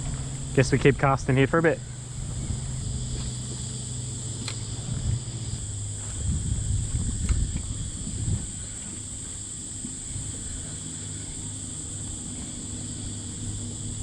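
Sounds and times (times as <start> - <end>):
high-pitched insect buzz: 0.0 - 14.0
wind buffeting microphone: 0.0 - 14.0.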